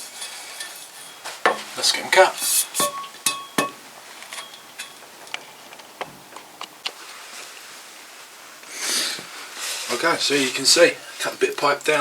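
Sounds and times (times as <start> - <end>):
metal pipes clinking: 0.0 - 5.2.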